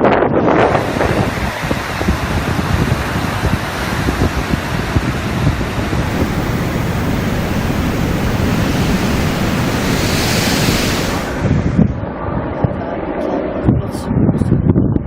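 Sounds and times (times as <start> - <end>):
wind buffeting microphone: 0.0 - 15.0
waves rushing: 0.6 - 11.9
hissing surge of water: 0.7 - 11.9
low rumble: 4.2 - 12.7.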